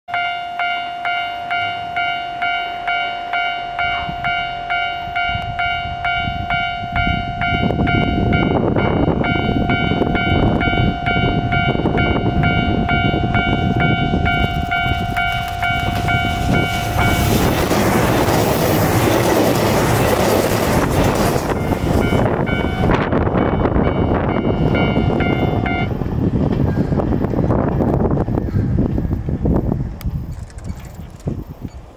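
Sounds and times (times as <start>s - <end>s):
level crossing bell ringing: 0.1s - 17.3s, 21.5s - 25.9s
held tone: 0.1s - 17.5s, 21.4s - 26.0s
diesel train passing: 0.1s - 30.3s.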